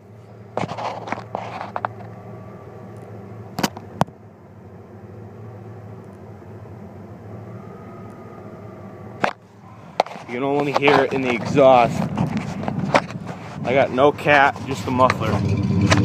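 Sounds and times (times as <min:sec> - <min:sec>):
car engine idling: 0:00.0 - 0:16.0
sharp exhaust clicks: 0:09.2 - 0:16.0.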